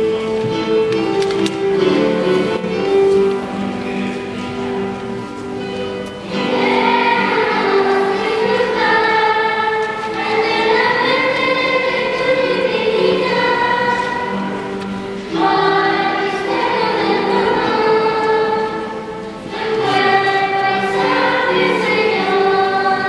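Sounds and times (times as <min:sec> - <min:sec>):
instrumental hymn accompaniment: 0:00.0 - 0:23.0
choir singing: 0:06.2 - 0:23.0.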